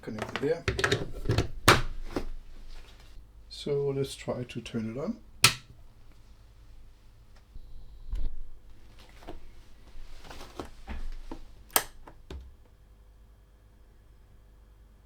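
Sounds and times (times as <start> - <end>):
receiver controls clicking: 11.7 - 12.5.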